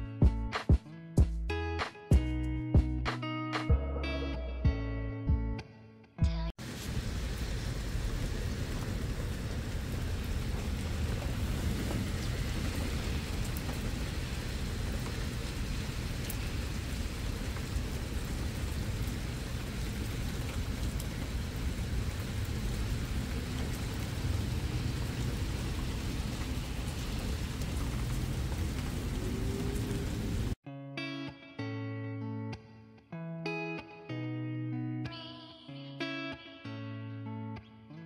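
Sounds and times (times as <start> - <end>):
rain falling on tiles: 6.6 - 30.6.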